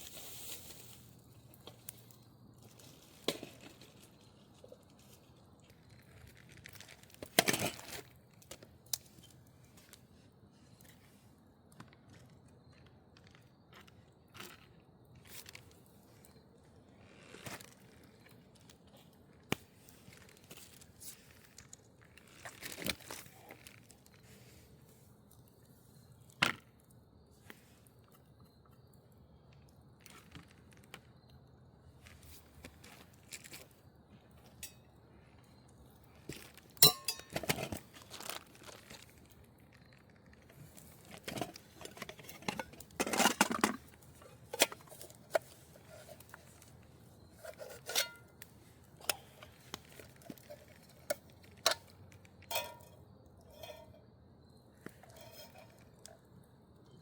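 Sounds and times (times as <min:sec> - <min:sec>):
low steady background noise: 0:00.0 - 0:57.0
small clicks and crinkles: 0:00.0 - 0:57.0
loud crunching rustle: 0:37.7 - 0:51.6.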